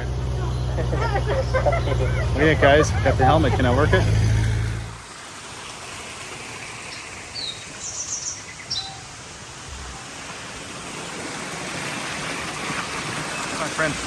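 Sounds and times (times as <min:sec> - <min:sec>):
outdoor background noise: 0:00.0 - 0:14.0
high bird chirps: 0:07.3 - 0:09.1.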